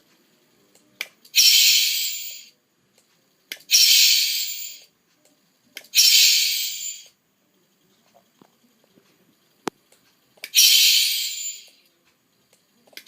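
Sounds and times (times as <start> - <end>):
hissing bursts of air: 1.4 - 2.5, 3.6 - 4.9, 5.9 - 7.1, 10.4 - 11.8.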